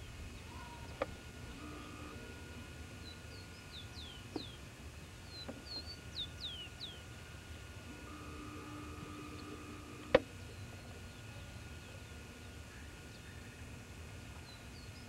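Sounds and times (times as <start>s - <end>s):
songbird singing: 3.0s - 7.1s.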